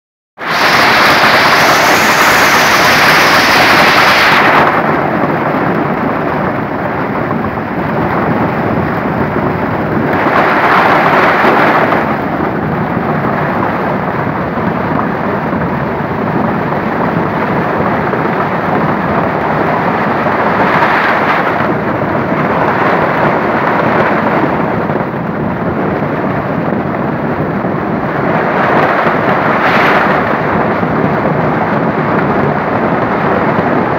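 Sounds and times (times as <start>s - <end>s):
heavy rain and hail: 0.4s - 25.1s.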